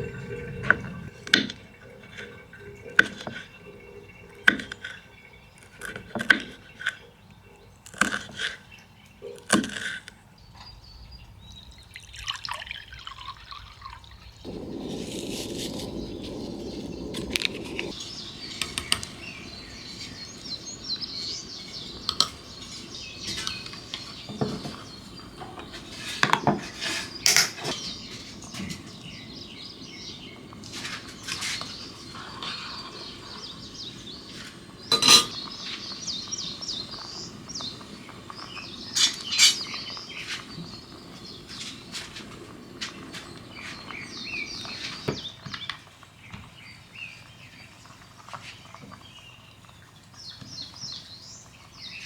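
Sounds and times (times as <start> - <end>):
birds chirping: 0.0 - 52.0
dishes and cutlery clinking: 18.6 - 28.9, 34.9 - 35.5.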